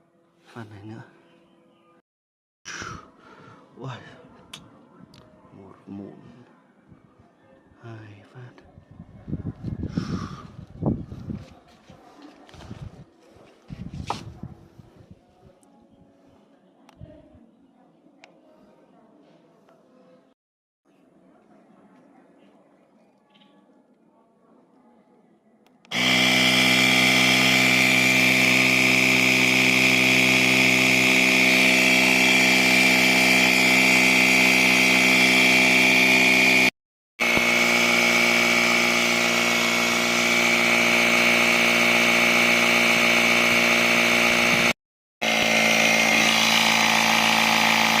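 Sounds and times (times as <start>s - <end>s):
small motor whining: 25.9s - 48.0s.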